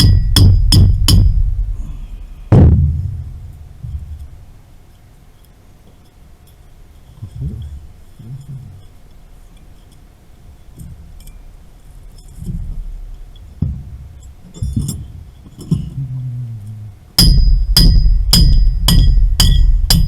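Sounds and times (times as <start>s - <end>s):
hammer blows on metal: 0.0s - 3.4s, 17.2s - 20.0s.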